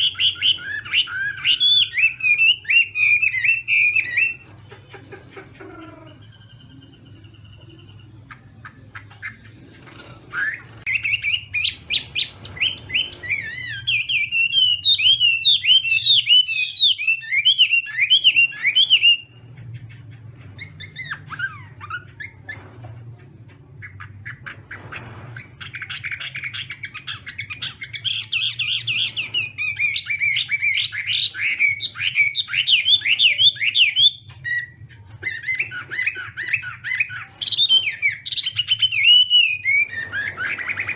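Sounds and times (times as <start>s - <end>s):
bird singing rapid varied notes: 5.8s - 22.6s.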